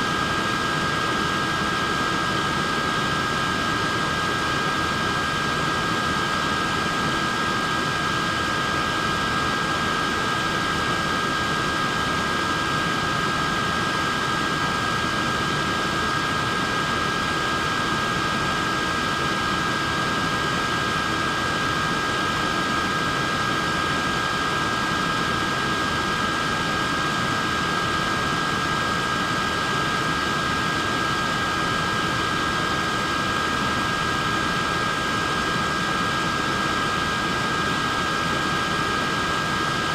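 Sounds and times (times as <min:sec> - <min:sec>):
fan motor whine: 0:00.0 - 0:39.9.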